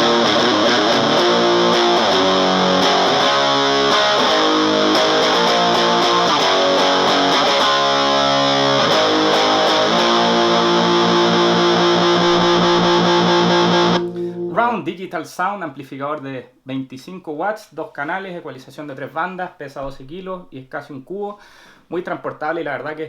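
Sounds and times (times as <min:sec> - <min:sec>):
electric guitar chords: 0:00.0 - 0:14.8.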